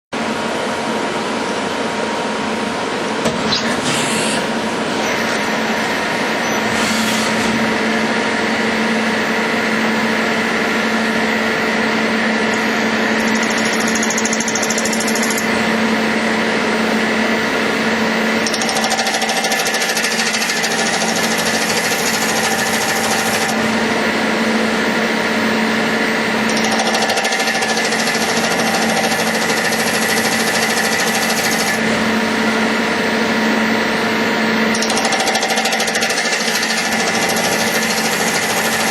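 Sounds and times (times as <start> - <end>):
metal lathe humming and rattling: 12.5 - 15.8, 17.4 - 33.2, 34.7 - 38.9.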